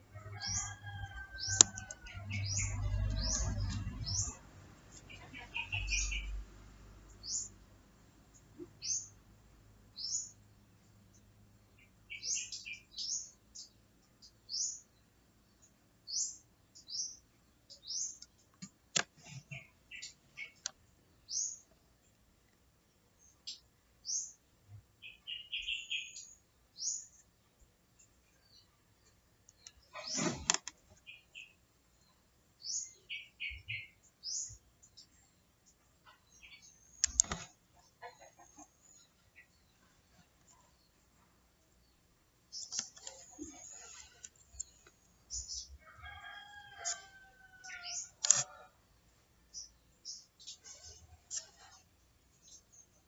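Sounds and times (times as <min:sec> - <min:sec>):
small birds chirping: 0:00.2 - 0:06.5, 0:07.1 - 0:07.6, 0:08.3 - 0:09.2, 0:09.8 - 0:53.0
sharp click: 0:37.0 - 0:37.5, 0:48.2 - 0:48.5.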